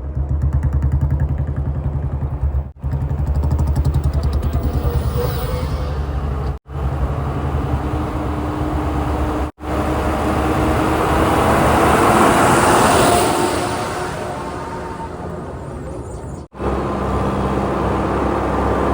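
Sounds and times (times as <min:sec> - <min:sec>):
diesel engine rumbling: 0:00.0 - 0:18.9
loud rushing sound: 0:02.2 - 0:17.0.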